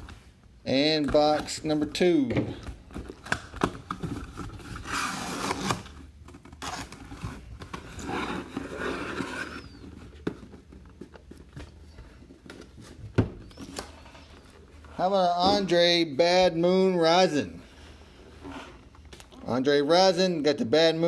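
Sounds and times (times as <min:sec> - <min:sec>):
cardboard scraping and rubbing: 0:04.5 - 0:09.9.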